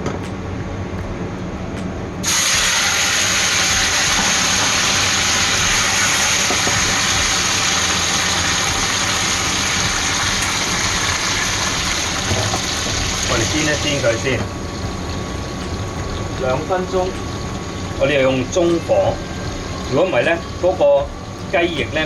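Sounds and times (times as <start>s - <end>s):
chicken sizzling in hot oil: 2.2s - 22.0s.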